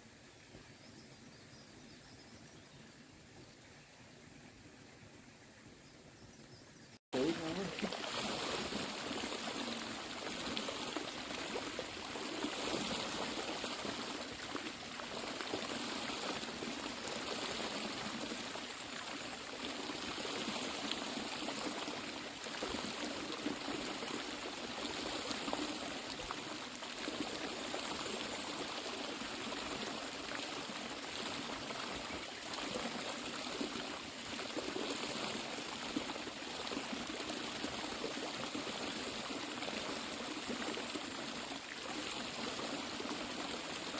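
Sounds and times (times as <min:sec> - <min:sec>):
water running: 0:07.2 - 0:32.7.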